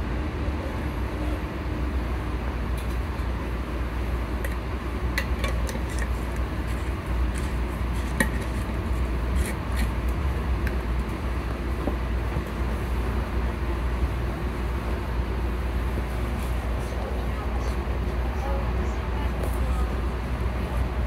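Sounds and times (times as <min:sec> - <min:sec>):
train car rumbling: 0:00.0 - 0:21.0.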